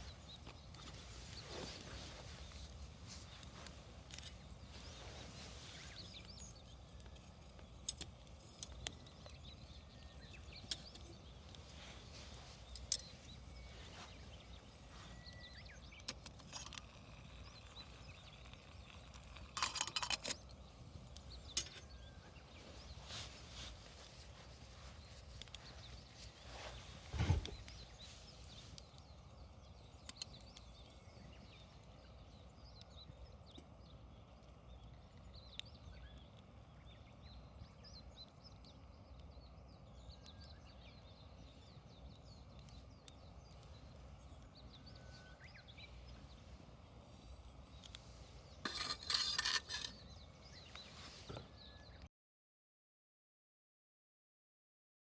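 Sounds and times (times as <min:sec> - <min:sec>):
wood fire crackling and popping: 0:16.0 - 0:19.7.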